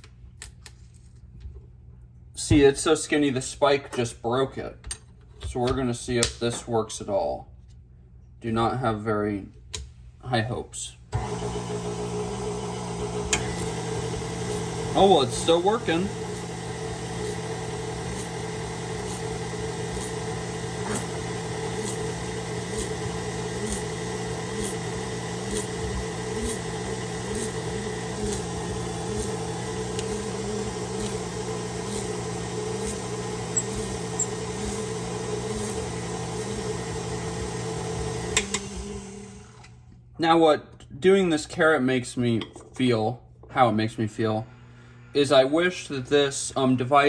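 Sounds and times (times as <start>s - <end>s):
stand mixer motor running: 11.2s - 39.6s.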